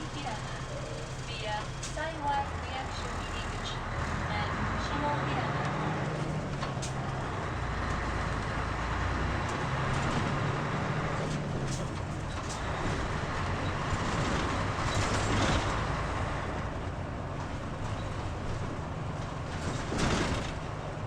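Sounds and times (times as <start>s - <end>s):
sharp clicks and rattles: 0.0s - 2.2s
bus engine drone: 0.0s - 21.0s
road and cabin noise: 0.0s - 21.0s.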